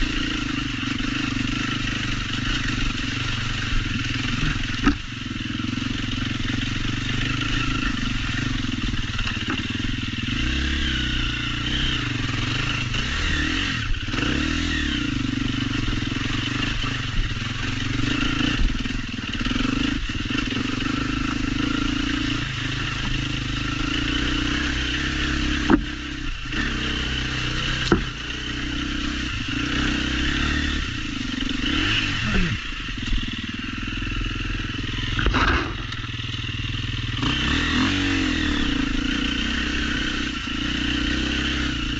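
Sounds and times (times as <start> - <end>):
motorcycle engine revving: 0.0 - 41.9
motorcycle knocks and clatter: 3.7 - 5.7, 7.2 - 10.1, 22.9 - 23.5, 25.5 - 26.6, 27.7 - 28.4, 35.0 - 36.5.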